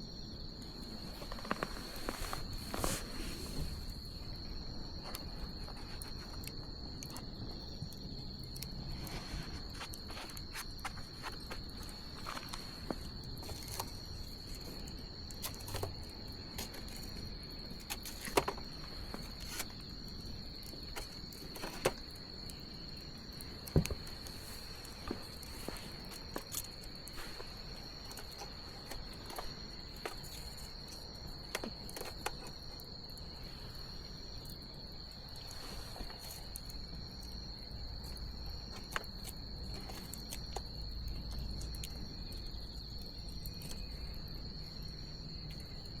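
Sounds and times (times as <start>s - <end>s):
crickets chirring: 0.0s - 46.0s.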